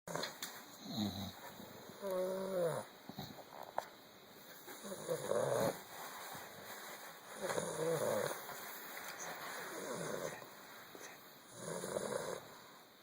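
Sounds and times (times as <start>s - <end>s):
puppy snoring: 0.1s - 3.5s, 4.8s - 5.9s, 7.4s - 8.5s, 9.6s - 10.4s, 11.0s - 12.7s.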